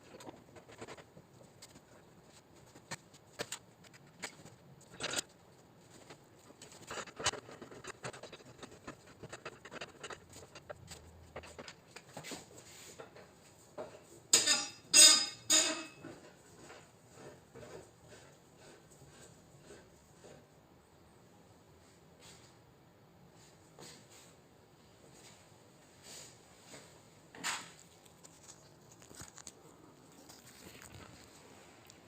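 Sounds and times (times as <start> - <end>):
scraping noises: 3.9 - 13.1.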